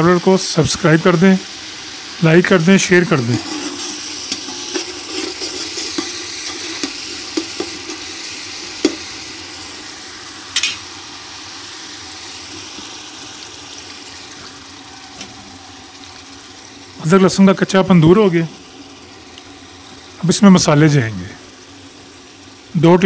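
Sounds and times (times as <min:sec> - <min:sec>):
paste and onions sizzling: 0:00.0 - 0:23.0
metal spatula scraping a pot: 0:03.3 - 0:08.1.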